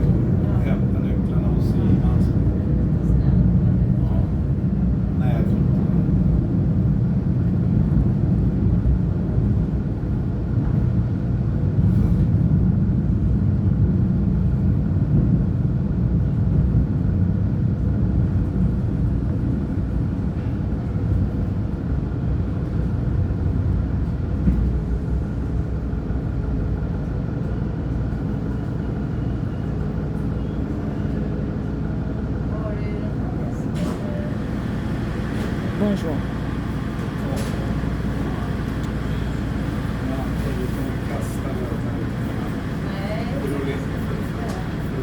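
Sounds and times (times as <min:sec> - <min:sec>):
train low rumble: 0:00.0 - 0:45.0.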